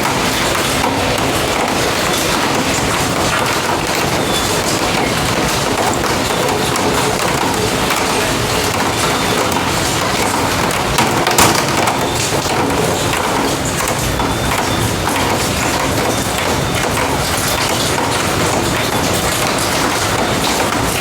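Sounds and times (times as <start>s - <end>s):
heavy rain falling: 0.0s - 21.0s
louder taps: 11.0s - 12.8s.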